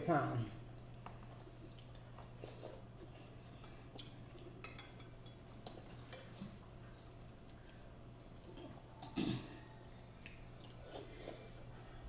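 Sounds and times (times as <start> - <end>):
low steady hum: 0.0 - 12.0
cutlery clinking on dishes: 3.6 - 6.4.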